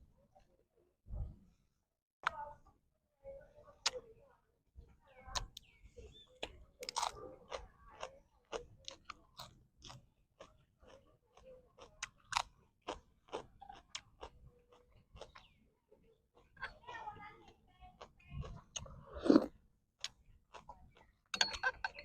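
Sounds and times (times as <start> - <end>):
person chewing and crunching food: 6.4 - 15.6, 16.3 - 21.3.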